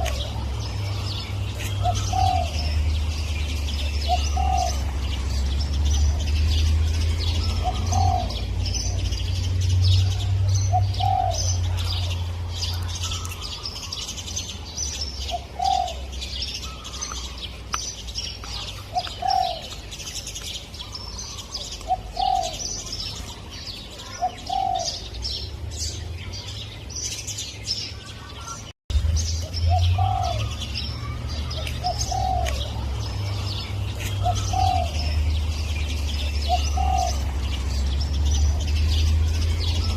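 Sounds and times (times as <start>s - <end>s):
dove cooing: 0.0s - 5.4s, 7.4s - 9.1s, 10.2s - 14.0s, 15.3s - 17.0s, 18.6s - 19.8s, 20.8s - 22.9s, 24.0s - 25.1s, 29.7s - 35.5s, 36.2s - 37.4s
small birds chirping: 0.0s - 39.9s.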